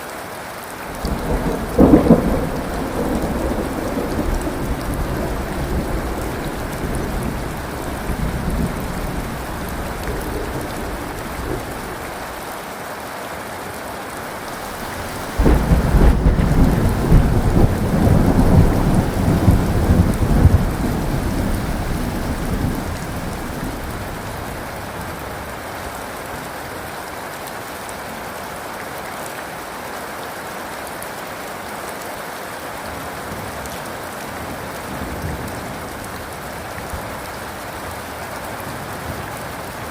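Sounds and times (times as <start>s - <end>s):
steady rain: 0.0s - 39.9s
thunder rumbling: 0.9s - 12.3s, 14.4s - 25.4s
loud thunderclap: 1.0s - 12.2s, 14.4s - 25.1s.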